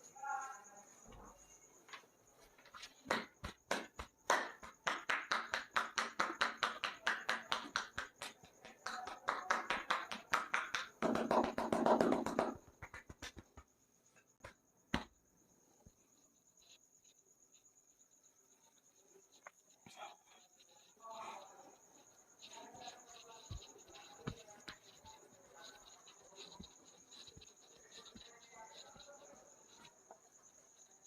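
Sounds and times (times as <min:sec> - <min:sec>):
faint high chirr: 0:00.0 - 0:03.0
hand slaps of head massage: 0:02.8 - 0:13.7, 0:14.4 - 0:15.2.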